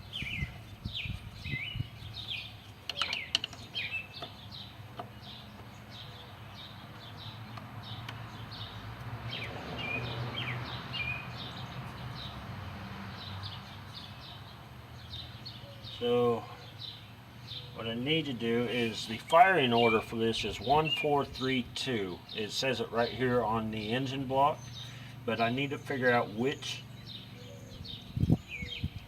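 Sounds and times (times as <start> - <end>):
small birds chirping: 0.0 - 29.0
sharp clicks: 2.8 - 4.3.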